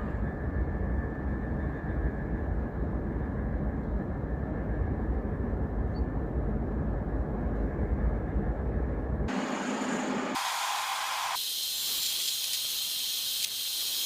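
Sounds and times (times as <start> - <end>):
low rumbling noise: 0.0 - 10.4.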